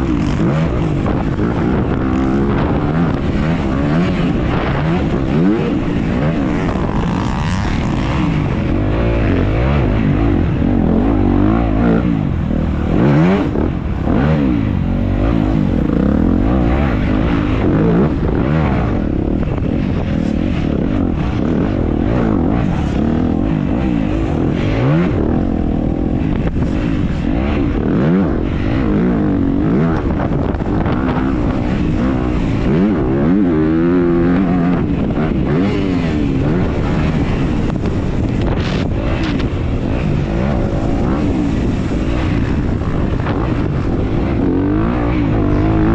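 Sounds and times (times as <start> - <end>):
dirt bike engine revving: 0.0 - 45.9
wind and track noise: 0.0 - 45.9.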